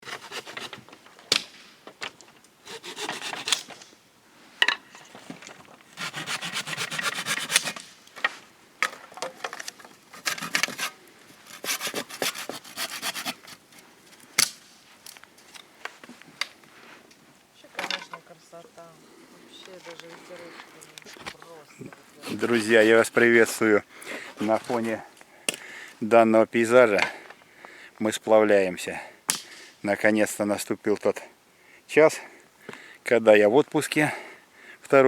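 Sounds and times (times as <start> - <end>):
rasping scraping strokes: 0.0 - 0.8, 2.6 - 3.7, 6.0 - 7.8, 10.1 - 13.6, 22.2 - 23.6.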